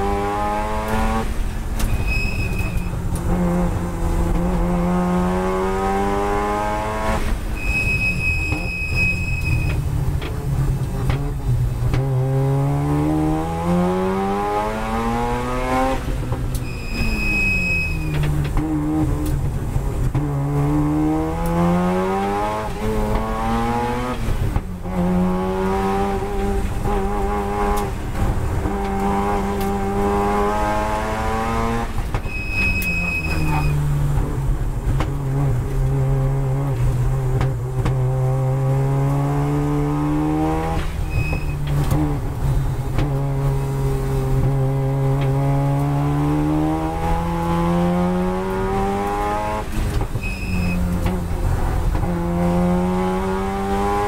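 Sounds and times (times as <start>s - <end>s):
rotary engine revving: 0.0s - 10.4s, 11.0s - 54.0s
short high squeal: 1.8s - 3.0s, 7.5s - 9.8s, 16.6s - 18.2s, 32.2s - 33.8s, 40.8s - 41.7s, 50.2s - 50.9s.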